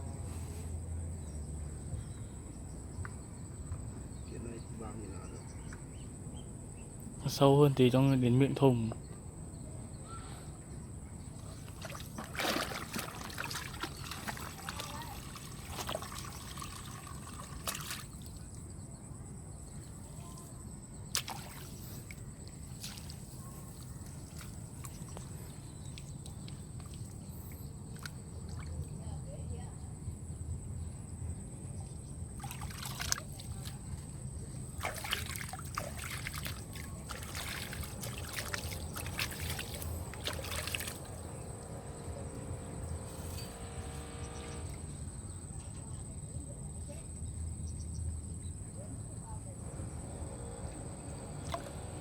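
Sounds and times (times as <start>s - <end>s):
water trickling and sloshing: 11.1s - 29.7s, 31.8s - 46.1s, 49.6s - 52.0s.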